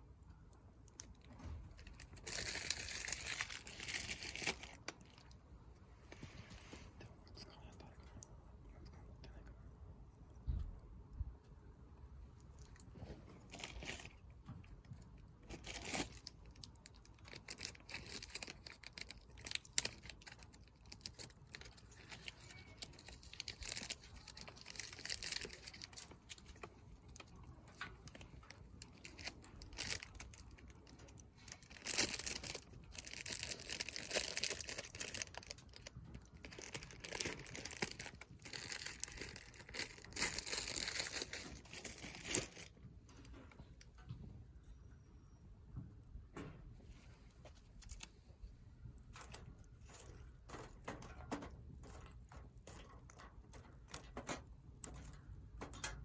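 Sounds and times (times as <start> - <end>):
wood fire crackling: 47.0 - 56.0.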